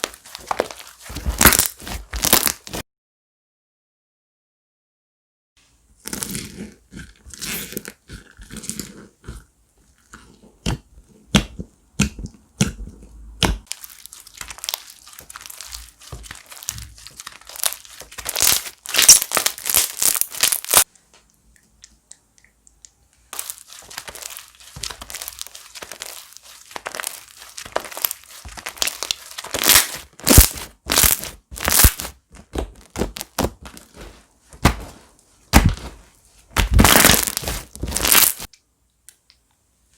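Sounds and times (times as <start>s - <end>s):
slime squeezed by hand: 13.6s - 20.9s, 23.3s - 32.2s, 36.6s - 38.5s
air popping in slime: 36.6s - 38.5s.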